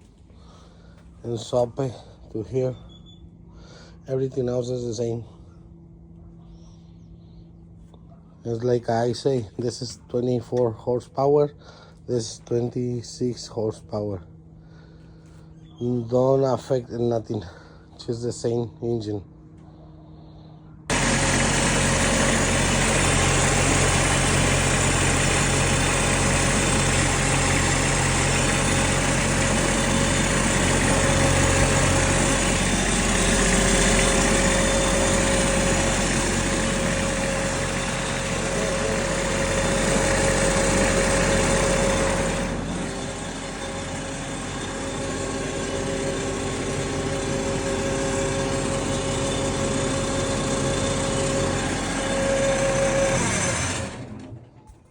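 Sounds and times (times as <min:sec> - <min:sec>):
diesel engine running: 0:00.0 - 0:10.6, 0:11.4 - 0:18.4, 0:19.0 - 0:54.7.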